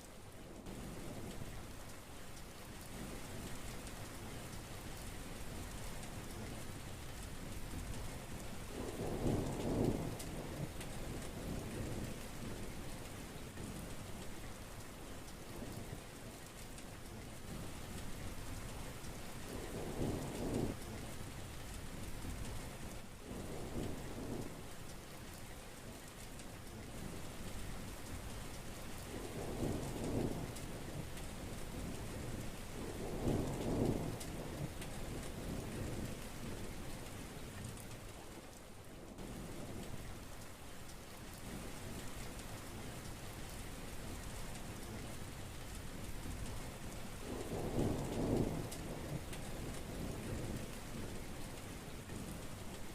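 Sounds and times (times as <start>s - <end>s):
heavy rain falling: 0.0s - 52.9s
thunder rumbles: 8.6s - 12.7s, 19.5s - 20.8s, 29.0s - 36.8s, 46.0s - 52.9s.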